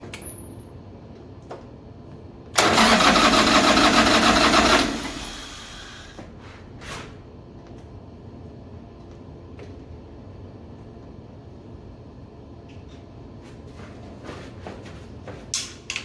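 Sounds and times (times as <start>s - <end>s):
motorcycle starter cranking: 2.6s - 6.1s.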